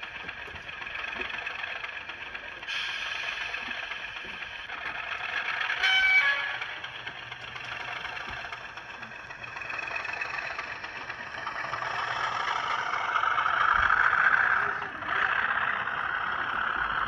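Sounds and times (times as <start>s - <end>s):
model train running on track: 0.0s - 17.0s.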